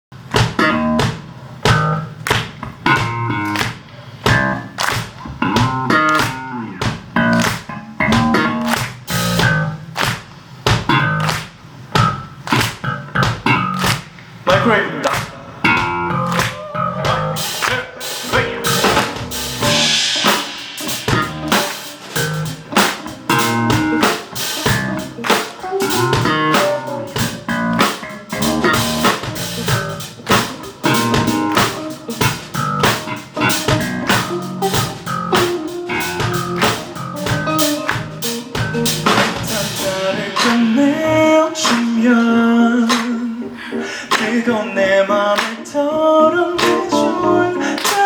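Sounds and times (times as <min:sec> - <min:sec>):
drum kit steady beat: 0:00.2 - 0:43.3, 0:47.8 - 0:48.0
electric guitar: 0:02.8 - 0:10.0, 0:15.6 - 0:48.0.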